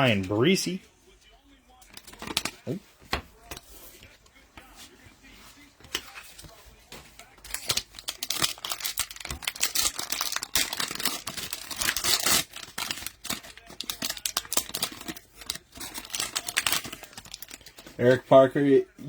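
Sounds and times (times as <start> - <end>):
cellophane wrapper crinkling and tearing: 1.9 - 2.8, 7.4 - 18.0.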